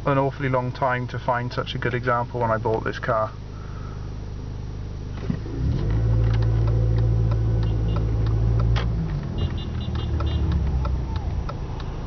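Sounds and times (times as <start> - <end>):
car engine drone from cabin: 0.0 - 12.0.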